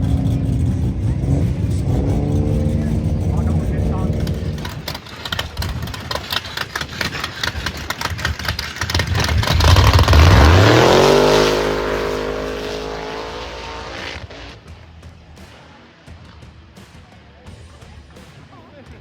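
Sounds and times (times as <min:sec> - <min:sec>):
race car engine accelerating: 0:00.0 - 0:14.8
engine popping crackle: 0:00.0 - 0:15.0.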